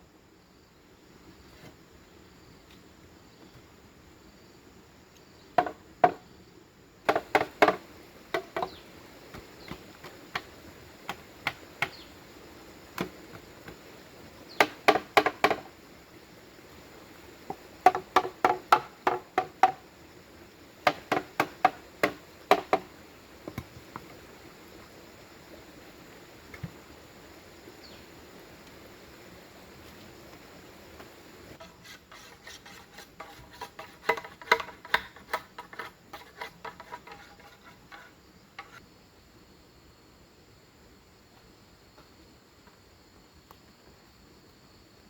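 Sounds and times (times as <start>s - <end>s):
tool striking bamboo: 7.1s - 8.8s, 14.6s - 15.7s, 17.8s - 19.8s, 20.8s - 22.9s, 31.6s - 38.8s.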